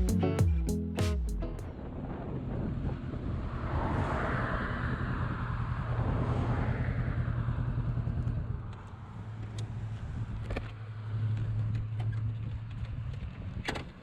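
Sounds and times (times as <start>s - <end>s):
wind rush on microphone: 1.8s - 8.6s.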